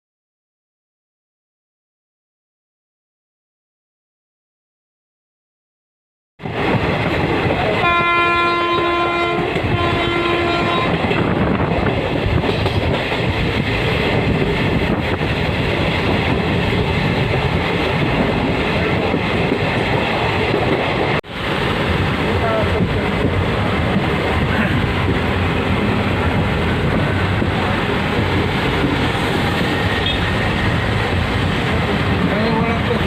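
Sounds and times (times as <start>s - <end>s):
train rumble and wheel clatter: 6.4s - 33.0s
locomotive horn blasts: 7.8s - 11.0s, 30.0s - 30.3s.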